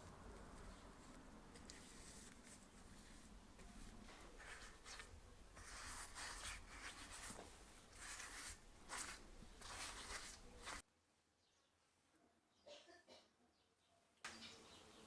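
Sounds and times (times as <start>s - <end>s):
faint hand scrubbing strokes: 1.0s - 10.8s.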